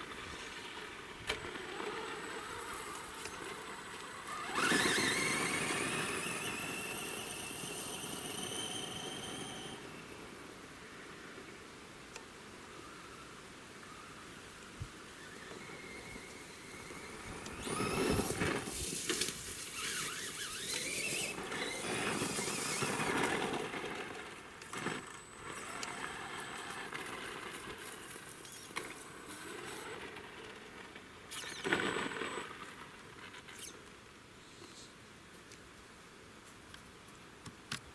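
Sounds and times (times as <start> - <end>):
electric motor whining: 0.3 - 10.2, 15.3 - 23.5.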